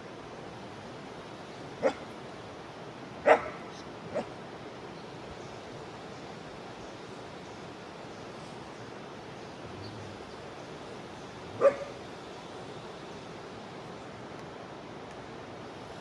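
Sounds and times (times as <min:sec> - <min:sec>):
river rushing: 0:00.0 - 0:16.0
dog barking: 0:01.8 - 0:02.1, 0:03.2 - 0:04.3, 0:11.5 - 0:12.0.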